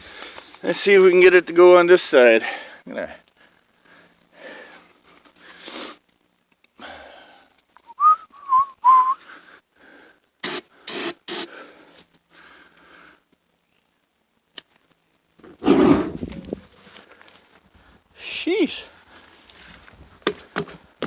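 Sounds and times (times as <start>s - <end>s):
whistled notes wavering in pitch: 7.9s - 9.2s
sharp clicks: 10.4s - 11.5s.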